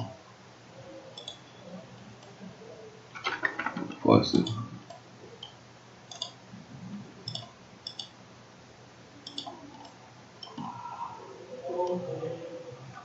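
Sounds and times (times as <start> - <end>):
computer mouse clicking: 1.1 - 1.4, 3.3 - 6.4, 7.2 - 8.2, 9.2 - 10.7.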